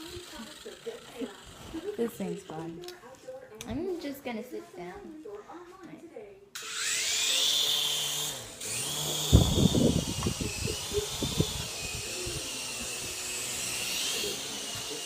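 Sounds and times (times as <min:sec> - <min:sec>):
toy helicopter motor whining: 0:00.0 - 0:02.8, 0:06.6 - 0:15.0.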